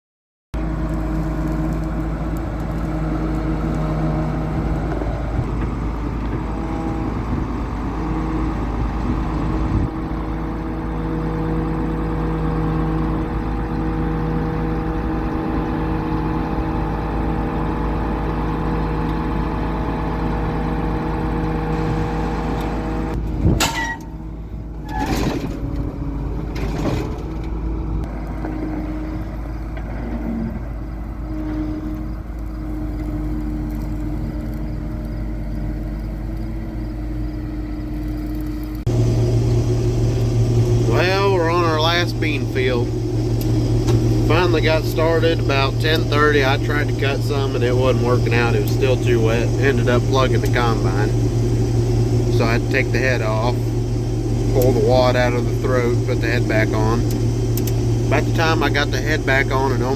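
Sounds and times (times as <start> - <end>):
large engine running: 0.6 - 59.9
sharp clunks: 23.4 - 24.2.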